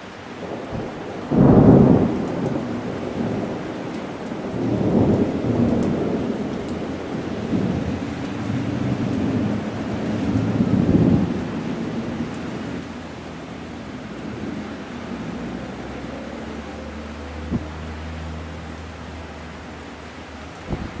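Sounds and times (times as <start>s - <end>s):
heavy rain falling: 0.0s - 21.0s
thunder rolling: 0.4s - 12.8s, 17.4s - 17.7s, 20.6s - 21.0s.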